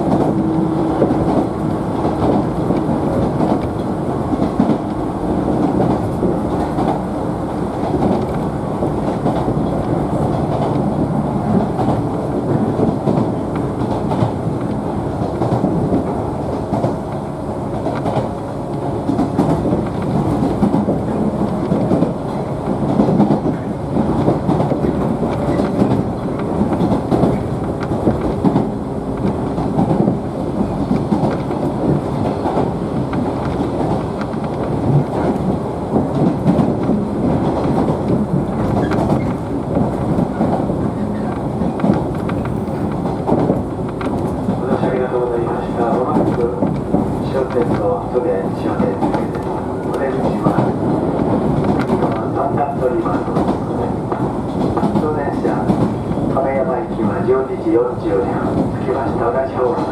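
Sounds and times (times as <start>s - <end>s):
train wheels rumbling on rails: 0.0s - 59.9s
wheels clacking over rail joints: 17.8s - 45.1s.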